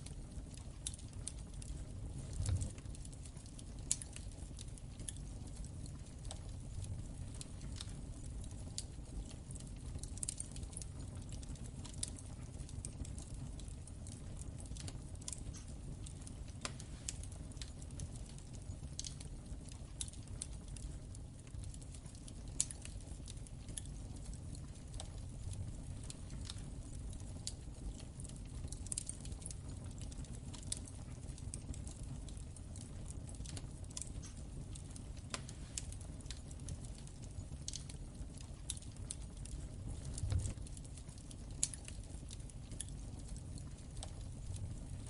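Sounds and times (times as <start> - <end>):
wood fire crackling: 0.0 - 45.0.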